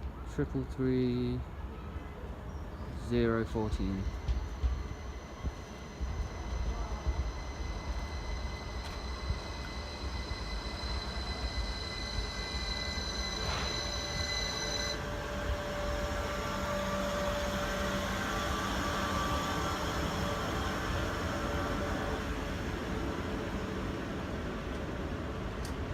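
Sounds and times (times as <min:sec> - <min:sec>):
train rumble: 0:00.0 - 0:25.9
train wheels squealing: 0:02.5 - 0:23.4
train motor whine: 0:03.0 - 0:25.9
click: 0:25.6 - 0:25.8.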